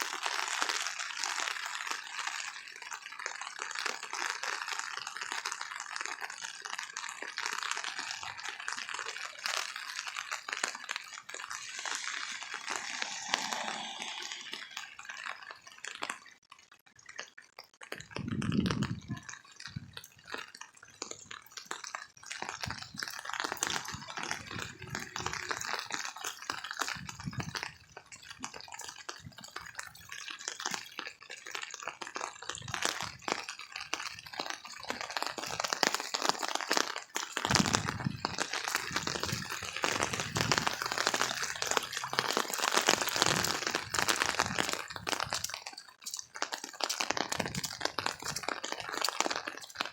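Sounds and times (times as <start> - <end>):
drops and drips striking: 0.0 - 49.9
heavy rain: 7.6 - 15.7, 23.0 - 27.4, 35.0 - 45.6.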